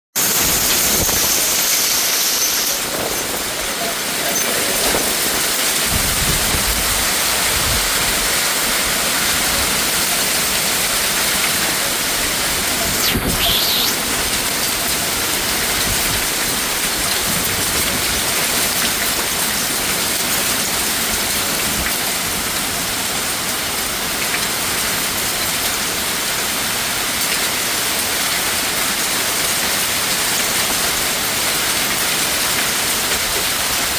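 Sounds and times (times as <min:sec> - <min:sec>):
rain falling steadily: 0:00.2 - 0:12.8, 0:14.0 - 0:33.9.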